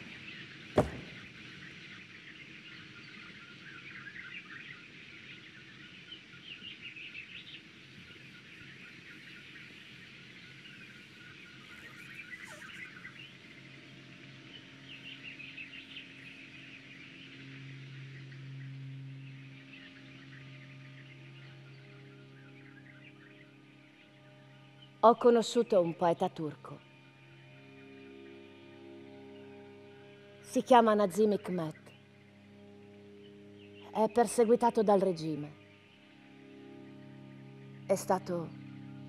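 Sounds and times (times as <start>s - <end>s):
faint bird chirps: 0.0s - 39.0s
low steady hum: 0.0s - 39.0s
sharp knock: 0.8s - 1.3s.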